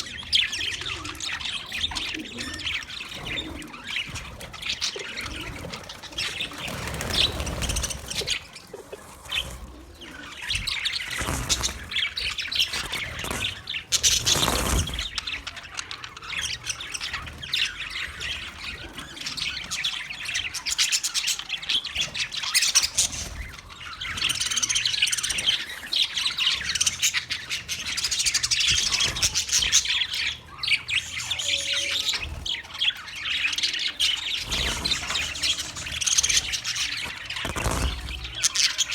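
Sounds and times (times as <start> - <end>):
budgie chirping and warbling: 24.1 - 38.9.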